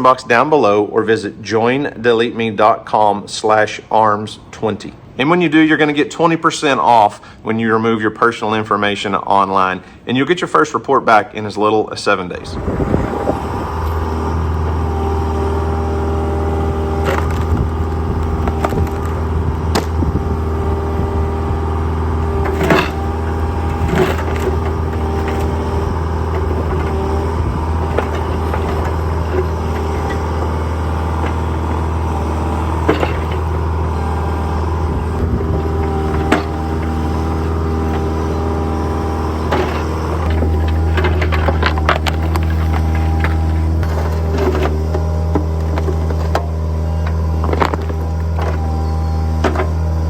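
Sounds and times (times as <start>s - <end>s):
heavy machinery engine running: 12.3s - 50.0s
machine clanks and knocks: 22.4s - 25.6s, 32.8s - 33.5s, 39.4s - 48.7s.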